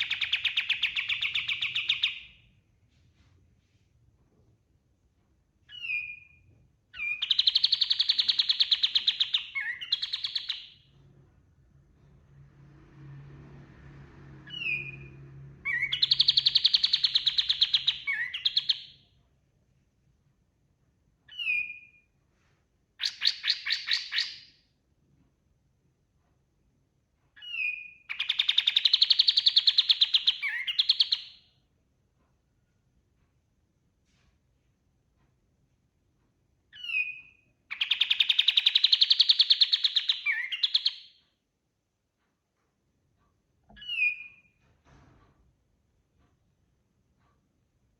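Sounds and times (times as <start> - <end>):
songbird whistle and trill: 0.0 - 2.3, 5.7 - 6.4, 7.0 - 10.8, 14.5 - 19.0, 21.3 - 22.0, 23.0 - 24.5, 27.4 - 31.4, 36.8 - 41.2, 43.8 - 44.5
songbird trilling: 7.0 - 10.8, 15.7 - 18.9, 36.8 - 41.1.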